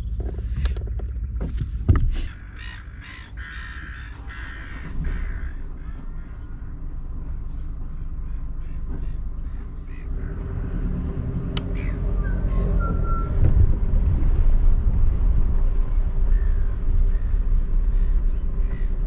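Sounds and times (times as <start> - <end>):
steady low rumble: 0.0 - 19.0
crow cawing: 2.4 - 6.6.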